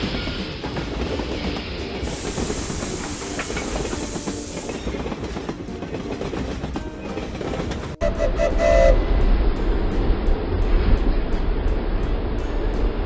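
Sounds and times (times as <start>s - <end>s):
train wheels clattering over rails: 0.0s - 8.0s
loud high hiss: 2.0s - 4.8s.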